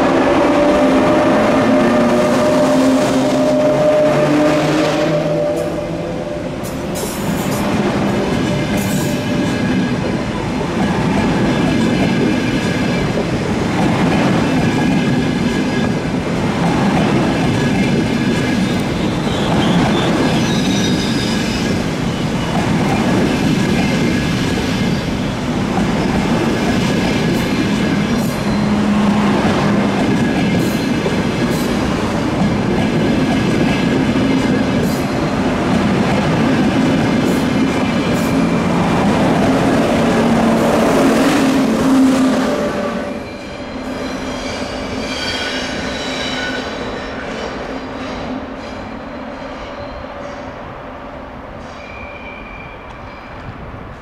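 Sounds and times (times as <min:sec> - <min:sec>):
train wheels rumbling on rails: 0:00.0 - 0:50.8
high wheel squeal: 0:18.6 - 0:22.6, 0:27.4 - 0:29.3, 0:42.8 - 0:47.4, 0:51.6 - 0:53.5.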